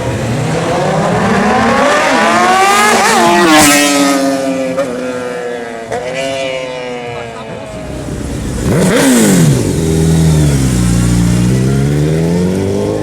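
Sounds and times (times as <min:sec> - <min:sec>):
motorcycle accelerating past: 0:07.8 - 0:13.0.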